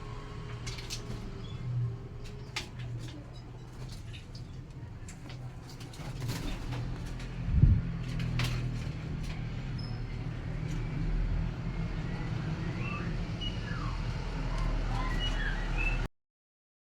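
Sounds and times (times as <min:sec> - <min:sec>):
low engine hum: 0:06.8 - 0:16.1
bird chirps: 0:11.8 - 0:16.1.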